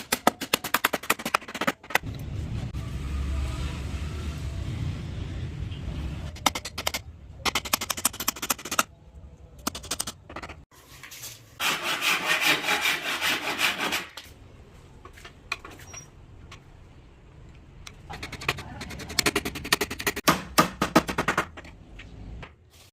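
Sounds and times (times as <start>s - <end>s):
sanding wood by hand: 11.6s - 14.1s.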